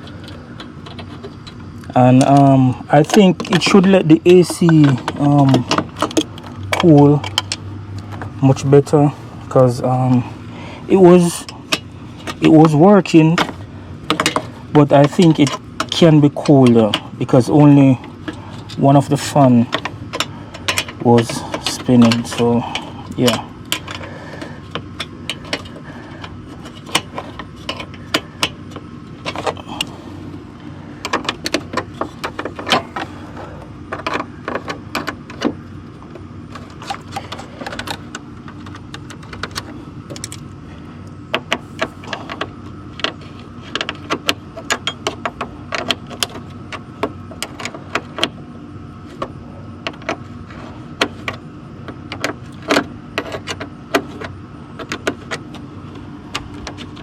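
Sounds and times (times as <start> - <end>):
metal tools clinking: 2.0 - 10.3, 12.2 - 24.4.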